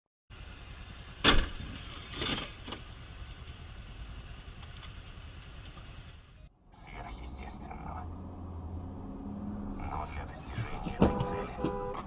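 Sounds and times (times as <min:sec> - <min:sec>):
road and engine rumble: 0:00.3 - 0:12.0
car collision bang: 0:01.2 - 0:02.5, 0:11.0 - 0:11.9.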